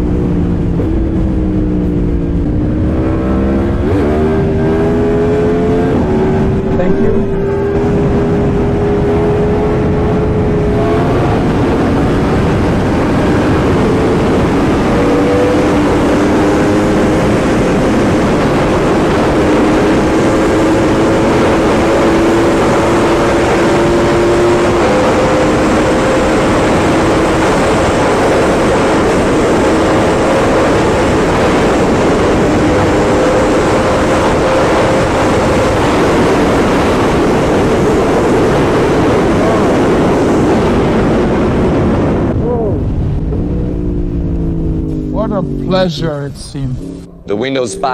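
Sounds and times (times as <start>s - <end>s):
motorcycle engine revving: 0.0s - 47.9s
wind rushing: 0.5s - 22.3s.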